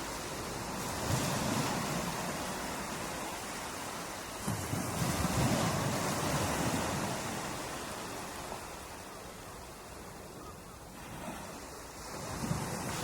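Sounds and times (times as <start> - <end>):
ocean waves on a beach: 0.0 - 13.0.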